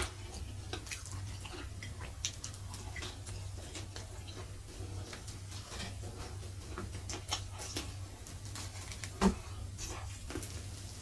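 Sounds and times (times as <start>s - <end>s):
wet chewing and lip clicks: 0.0s - 8.0s
low steady hum: 0.0s - 11.0s.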